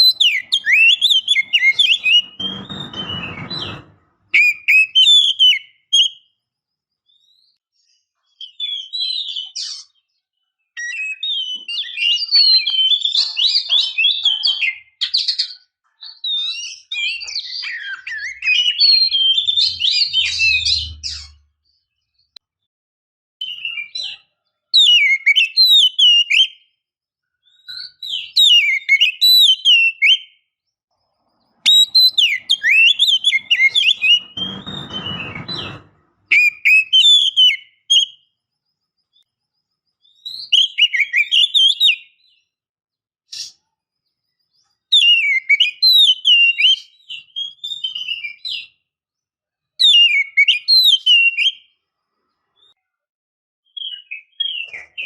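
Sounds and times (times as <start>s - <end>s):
bird whistles and chirps: 0.0s - 6.4s, 8.3s - 10.0s, 10.7s - 21.8s, 23.4s - 26.7s, 27.4s - 30.5s, 31.6s - 38.4s, 40.0s - 42.5s, 44.9s - 48.8s, 49.8s - 51.8s, 53.7s - 55.0s.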